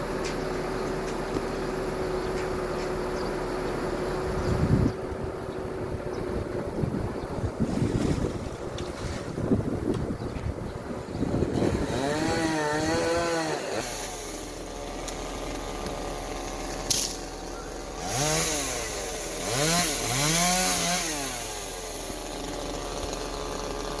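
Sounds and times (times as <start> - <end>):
chainsaw revving: 11.4 - 24.0.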